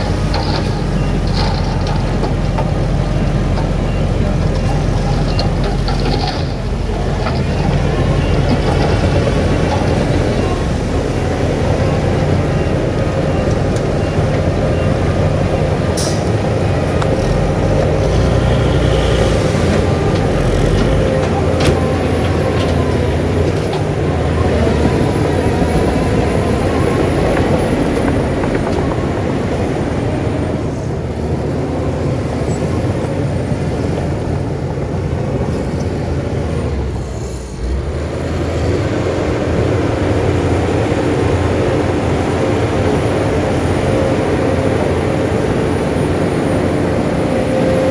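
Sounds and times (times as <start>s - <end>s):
diesel earthmoving machinery running: 0.0s - 47.9s.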